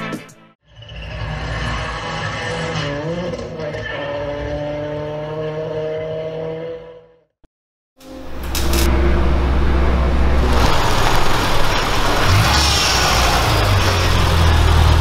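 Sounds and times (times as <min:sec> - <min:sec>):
car engine running at low speed: 0:08.2 - 0:15.0.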